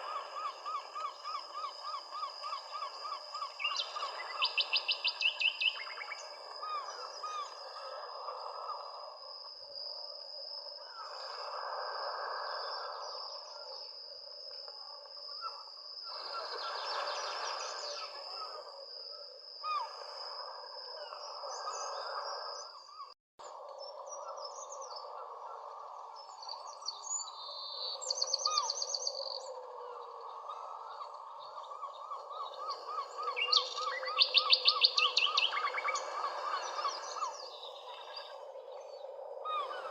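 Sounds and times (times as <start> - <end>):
birds chirping and trilling: 0.0 - 7.6, 26.2 - 39.9.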